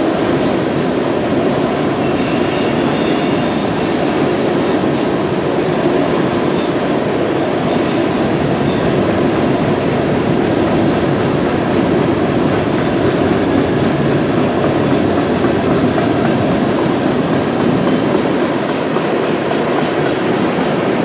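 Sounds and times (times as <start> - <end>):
wheels rumbling on rail: 0.0 - 21.0
thin high wheel squeal: 2.0 - 5.1.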